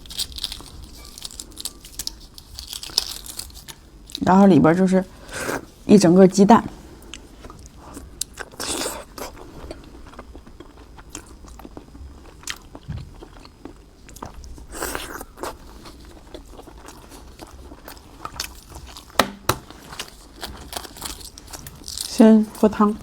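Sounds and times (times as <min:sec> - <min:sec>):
person chewing with crunches: 0:00.0 - 0:04.2, 0:07.0 - 0:23.0.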